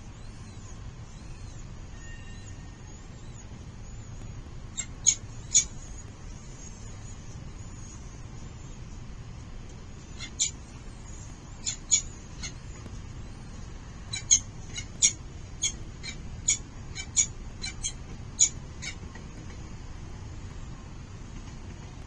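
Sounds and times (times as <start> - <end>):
low background noise: 0.0 - 22.0
falcons calling: 4.7 - 6.1, 10.0 - 19.0.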